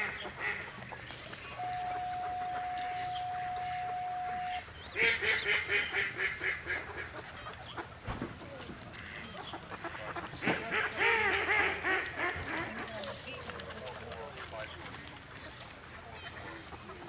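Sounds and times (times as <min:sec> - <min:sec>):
steady single tone: 0:01.6 - 0:04.7
bird calling in fast pitched notes: 0:01.6 - 0:05.8.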